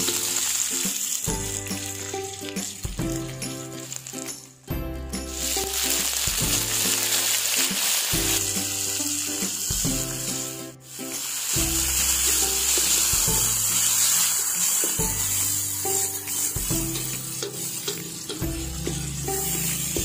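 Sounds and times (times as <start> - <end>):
vegetables sizzling in hot oil: 0.0 - 4.6, 5.2 - 20.0
background music with bass line: 1.3 - 7.4, 8.2 - 13.9, 15.0 - 20.0.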